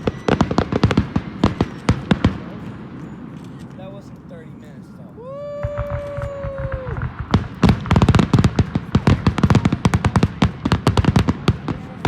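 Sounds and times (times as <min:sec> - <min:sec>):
firework whistling: 0:00.0 - 0:03.8, 0:05.2 - 0:12.0
firework bangs and crackles: 0:00.0 - 0:12.0.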